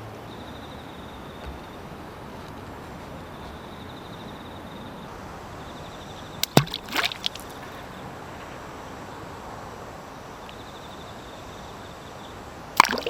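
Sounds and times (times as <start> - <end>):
faint pulsing insect trill: 0.0 - 2.4, 3.1 - 6.4, 7.3 - 12.7
watery sweep: 6.4 - 7.8, 12.8 - 13.0.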